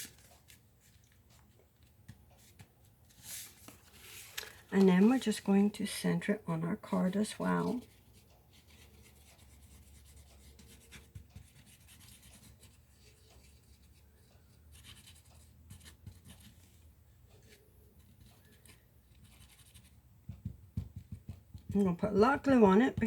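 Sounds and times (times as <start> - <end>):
cardstock rustling and scraping: 2.4 - 5.7.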